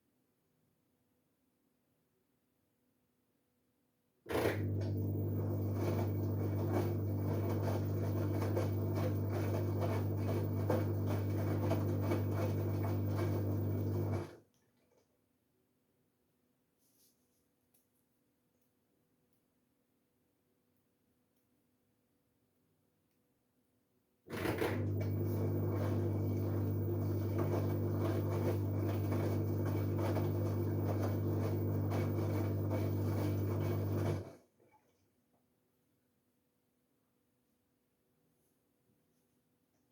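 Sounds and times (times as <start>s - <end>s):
washing machine motor hum: 4.3s - 14.4s, 24.3s - 34.4s.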